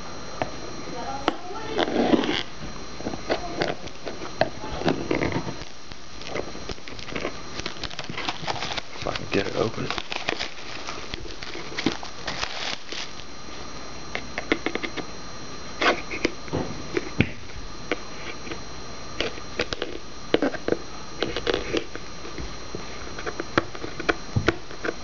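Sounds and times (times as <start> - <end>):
packaging crackling and rustling: 1.6 - 13.6.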